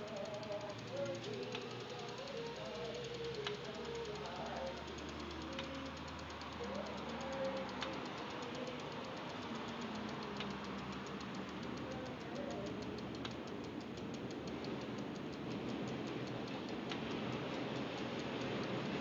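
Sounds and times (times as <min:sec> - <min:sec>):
bicycle wheel ticking: 0:00.0 - 0:19.0.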